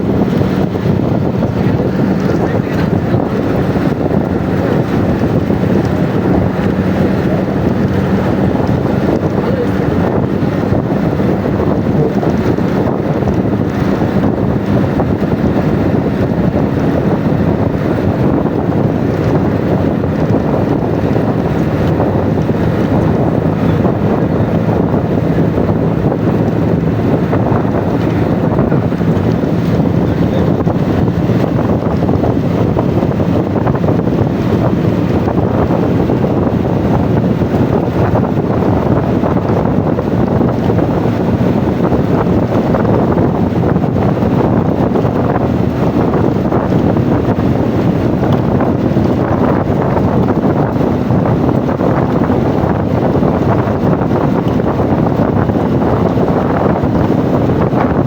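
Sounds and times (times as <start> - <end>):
low engine drone: 0.0 - 58.0
wind buffeting microphone: 0.0 - 58.0.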